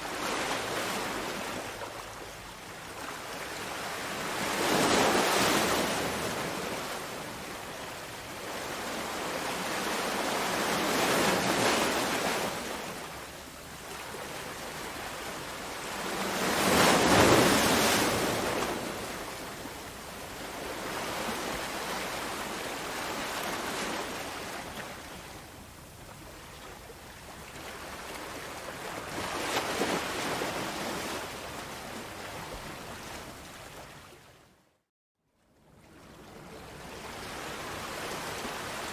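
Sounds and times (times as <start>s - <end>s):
sea waves breaking: 14.8s - 19.7s.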